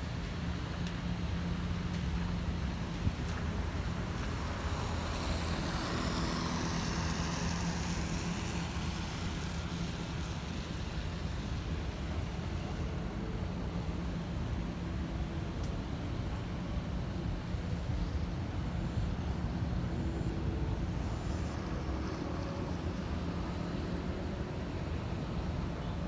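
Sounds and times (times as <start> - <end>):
city traffic rumble: 0.0 - 26.0
vehicle passing on wet road: 2.2 - 12.2.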